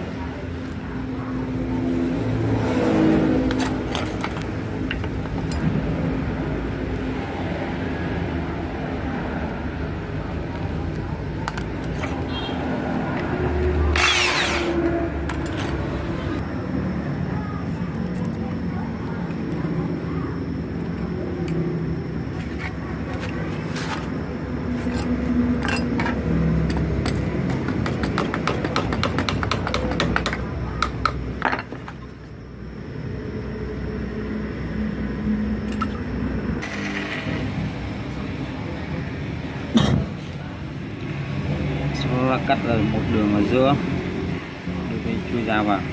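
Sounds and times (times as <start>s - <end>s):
harsh metal grinding: 13.8s - 16.3s, 36.6s - 37.8s
power tool running: 13.9s - 14.8s.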